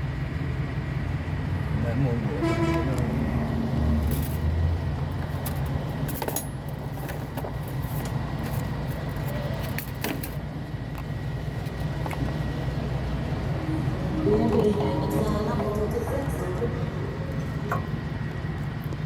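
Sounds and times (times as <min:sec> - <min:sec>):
vehicle engine rumble: 0:00.0 - 0:19.0
metallic clinks and knocks: 0:04.1 - 0:04.4, 0:05.2 - 0:10.4.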